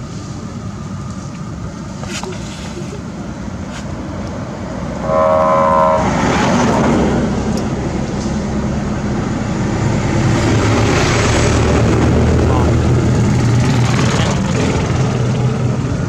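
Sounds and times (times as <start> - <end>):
vehicle horn: 5.0 - 7.0
vehicle rumble: 9.2 - 16.0.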